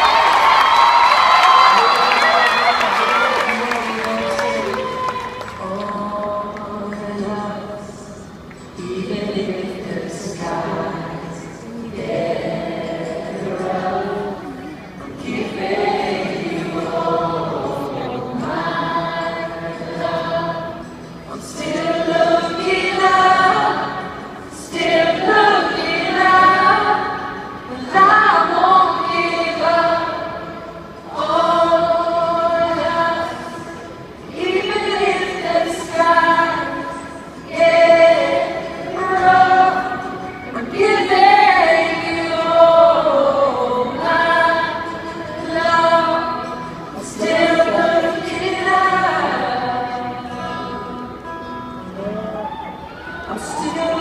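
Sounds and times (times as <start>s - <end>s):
choir singing: 8.8s - 51.1s, 53.2s - 54.0s.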